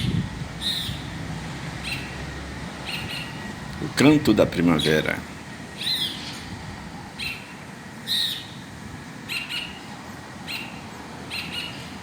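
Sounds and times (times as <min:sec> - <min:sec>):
bird whistled calls: 0:00.6 - 0:01.1, 0:05.8 - 0:06.2, 0:07.2 - 0:08.6, 0:10.5 - 0:11.9.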